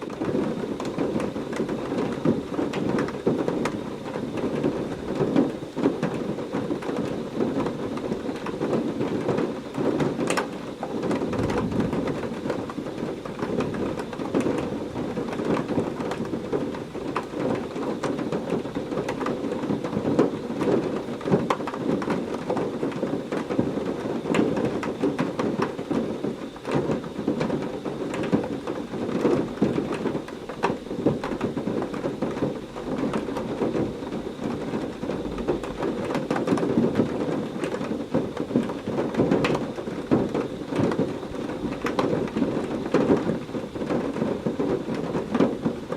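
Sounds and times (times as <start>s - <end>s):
heavy rain falling: 0.0s - 45.9s
thunder rumbling: 11.0s - 17.0s.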